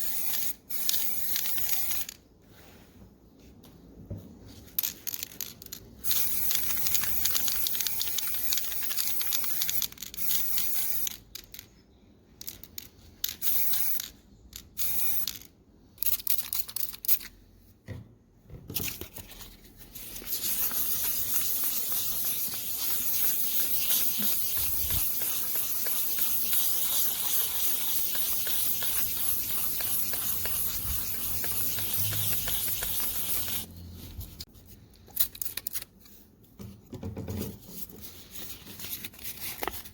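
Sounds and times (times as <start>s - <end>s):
spray paint hissing: 0.0s - 2.2s, 6.0s - 11.3s, 13.3s - 15.5s, 20.0s - 34.5s.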